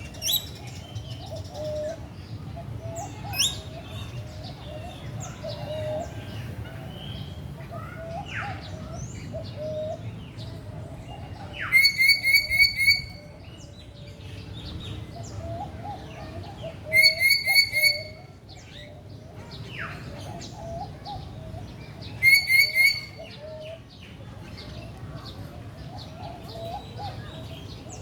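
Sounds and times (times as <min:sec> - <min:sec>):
birds chirping: 0:00.0 - 0:28.0
bird giving sharp notes: 0:11.7 - 0:13.2, 0:16.9 - 0:18.2, 0:22.2 - 0:23.2.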